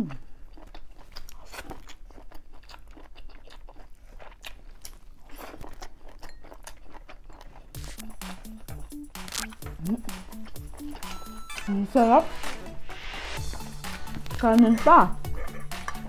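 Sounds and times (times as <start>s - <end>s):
chewing with mouth clicks: 0.0s - 11.7s, 15.1s - 16.0s.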